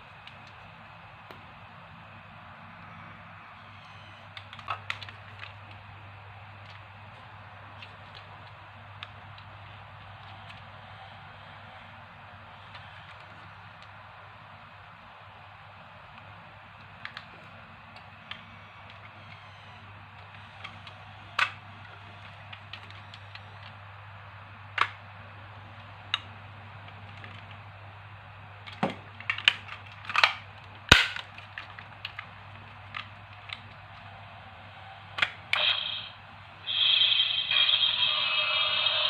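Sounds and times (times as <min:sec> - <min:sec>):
plastic toy clicking: 0:20.2 - 0:23.8, 0:28.7 - 0:33.8.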